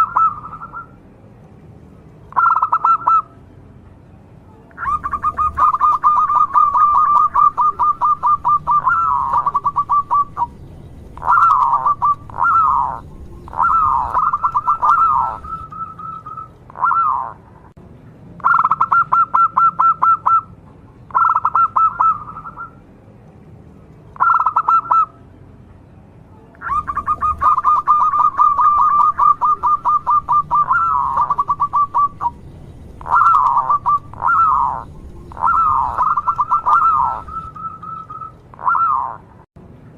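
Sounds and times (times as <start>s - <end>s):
dove cooing: 0.0s - 0.9s, 2.3s - 3.3s, 4.8s - 17.4s, 18.4s - 20.5s, 21.1s - 22.8s, 24.2s - 25.1s, 26.6s - 39.3s.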